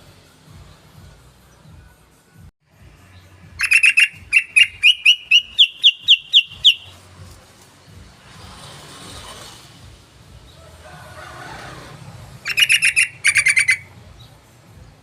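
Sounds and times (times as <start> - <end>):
bulbul calling sharp notes: 3.5 - 7.2, 12.4 - 14.0.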